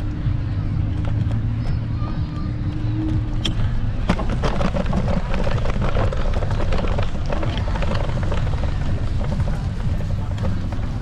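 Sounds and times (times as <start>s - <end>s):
wind and tyre rumble: 0.0s - 11.0s.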